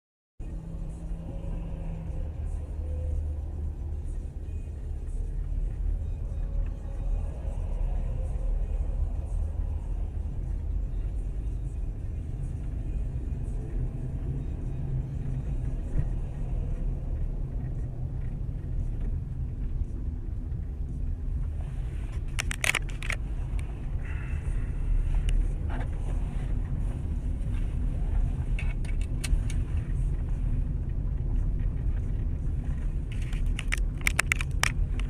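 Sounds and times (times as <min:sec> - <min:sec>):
vehicle rumble: 0:00.4 - 0:35.0.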